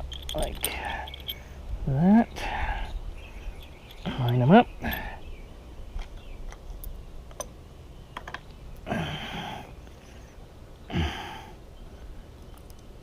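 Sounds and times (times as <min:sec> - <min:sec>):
person grunting with effort: 0:10.9 - 0:11.5.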